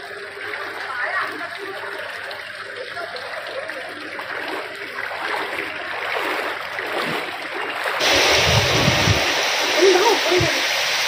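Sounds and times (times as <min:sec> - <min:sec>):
floodwater rushing and splashing: 0:00.0 - 0:11.0.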